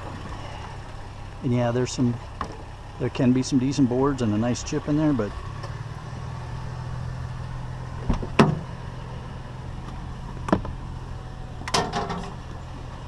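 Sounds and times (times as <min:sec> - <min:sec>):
vehicle engine idling: 0:00.0 - 0:13.0
sharp knocks and clunks: 0:08.0 - 0:08.7, 0:11.6 - 0:12.4.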